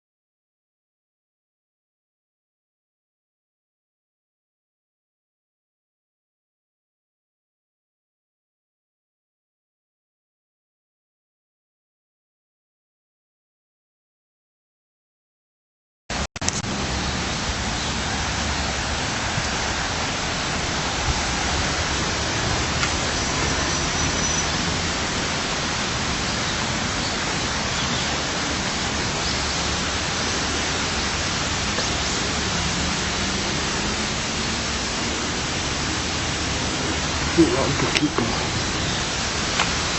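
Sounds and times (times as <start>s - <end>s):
flowing water rushing: 16.4s - 39.9s.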